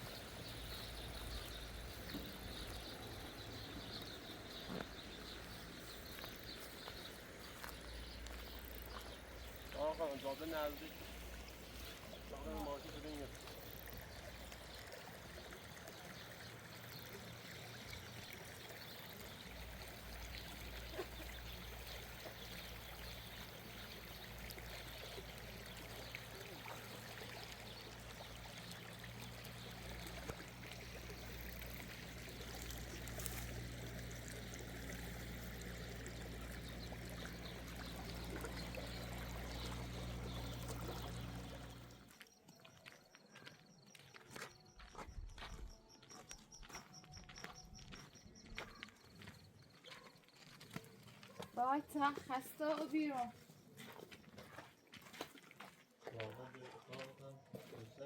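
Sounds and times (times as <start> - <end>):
water rushing and trickling: 0.0 - 42.1
low steady hum: 27.4 - 42.1.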